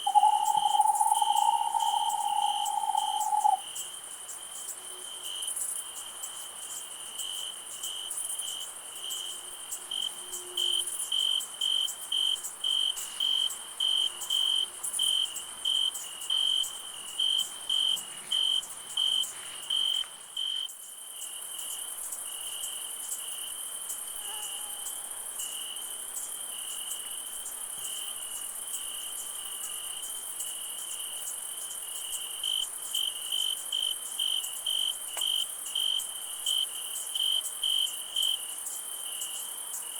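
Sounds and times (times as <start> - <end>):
high insect buzz: 0.0 - 3.6
crickets chirping: 0.0 - 39.9.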